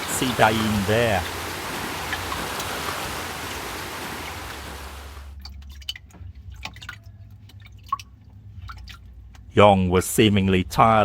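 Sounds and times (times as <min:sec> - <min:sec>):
rushing water: 0:00.0 - 0:05.4
water drips: 0:00.0 - 0:09.5.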